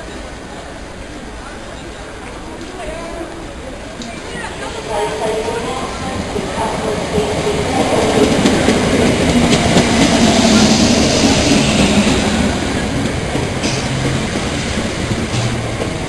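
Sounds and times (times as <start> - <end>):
train wheels rumbling on rails: 2.0 - 16.0.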